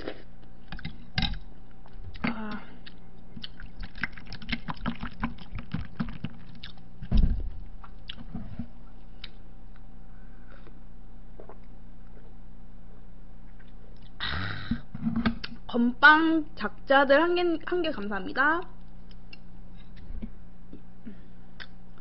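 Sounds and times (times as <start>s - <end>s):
person chewing food: 0.0s - 6.9s, 7.8s - 8.6s, 10.4s - 12.4s
low electrical hum: 0.0s - 22.0s
low thump: 7.1s - 7.6s.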